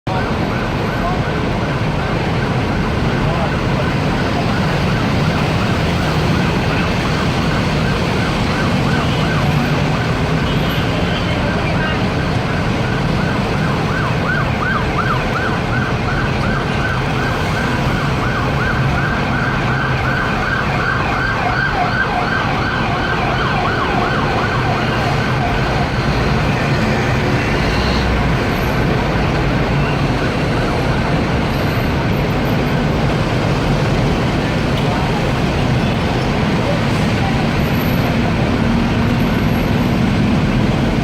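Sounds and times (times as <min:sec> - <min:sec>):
heavy road traffic rumble: 0:00.0 - 0:41.0
siren yelping: 0:00.1 - 0:31.8.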